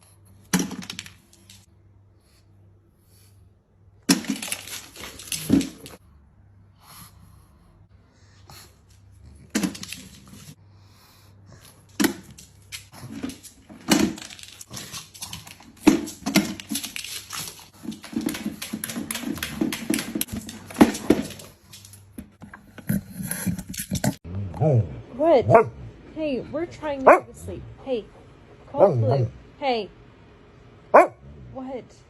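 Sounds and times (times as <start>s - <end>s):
dog barking: 25.4s - 25.8s, 27.0s - 27.4s, 30.9s - 31.3s.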